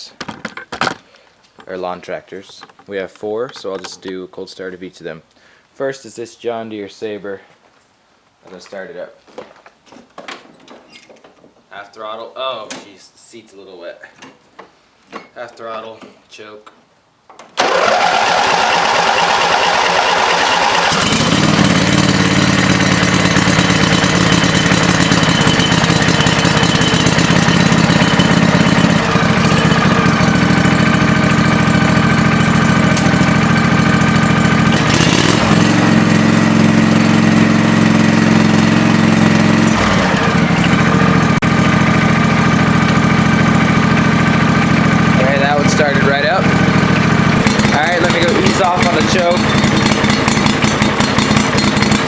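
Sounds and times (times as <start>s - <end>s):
lawn tractor engine running: 17.6s - 52.0s
starter motor whining: 17.6s - 52.0s.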